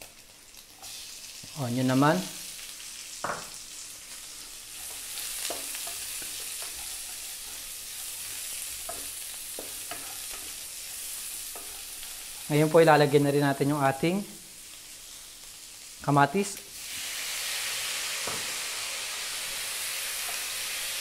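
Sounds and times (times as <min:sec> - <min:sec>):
onion and garlic sizzling in oil: 0:00.0 - 0:21.0
wooden spatula scraping pan: 0:04.8 - 0:10.6.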